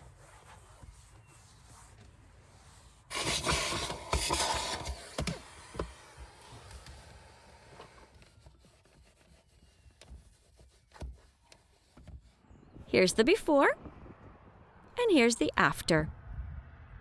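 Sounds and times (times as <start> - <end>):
rubbing and wiping: 0.0 - 12.5.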